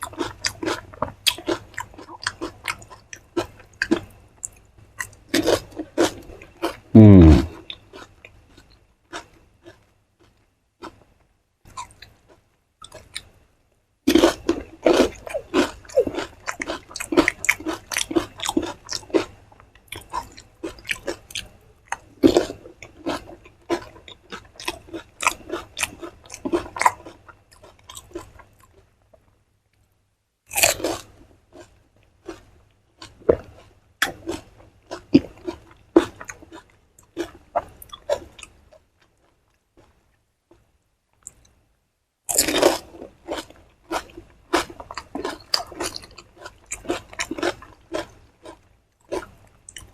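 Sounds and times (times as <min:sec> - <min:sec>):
crunching and chewing: 0:00.0 - 0:11.1, 0:11.7 - 0:13.4, 0:14.1 - 0:29.8, 0:30.5 - 0:41.6, 0:42.3 - 0:49.9.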